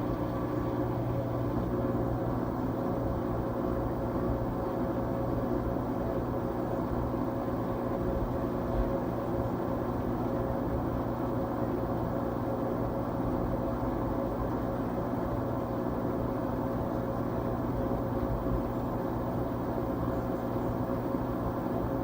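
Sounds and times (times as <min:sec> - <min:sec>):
washing machine whirring: 0:00.0 - 0:22.0.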